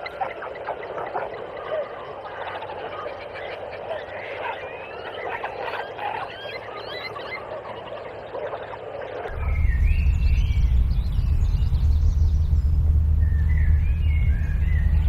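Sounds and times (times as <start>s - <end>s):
birds chirping: 0.0s - 15.0s
outdoor ambience: 0.0s - 15.0s
loud low rumble: 9.3s - 15.0s.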